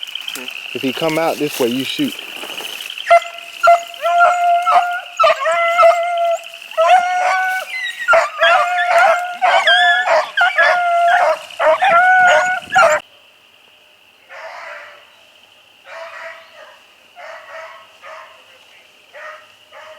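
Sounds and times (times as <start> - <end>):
beagles baying: 1.0 - 13.0, 15.9 - 18.5.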